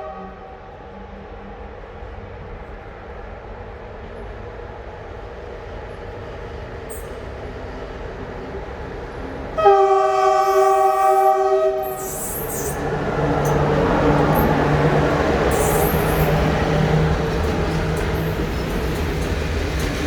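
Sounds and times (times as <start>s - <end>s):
locomotive horn blast: 0.0s - 0.7s, 9.6s - 12.8s
train rumbling: 0.0s - 20.0s.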